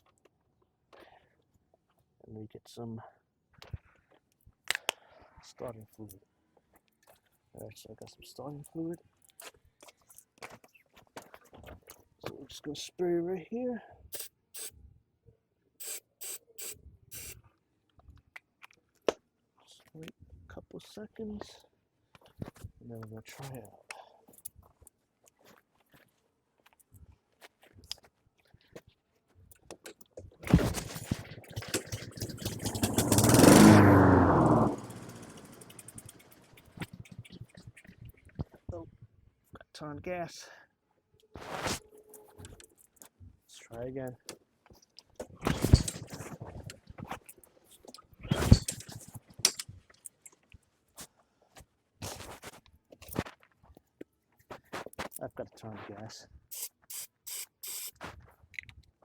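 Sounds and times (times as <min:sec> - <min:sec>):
lawn mower pull-start: 0:30.5 - 0:37.2, 0:45.5 - 0:46.8, 0:48.3 - 0:49.7
lawn mower engine running: 0:30.8 - 0:36.5, 0:48.4 - 0:49.6.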